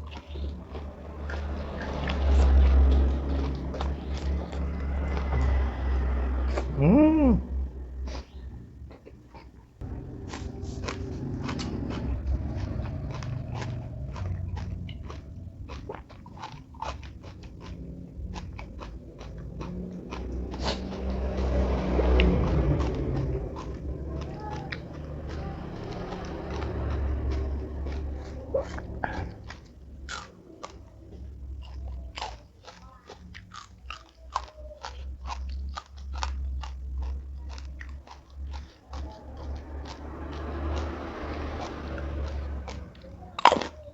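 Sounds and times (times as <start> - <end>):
person chewing crunchy food: 0.0 - 43.9
wet mouth sounds: 10.2 - 43.9.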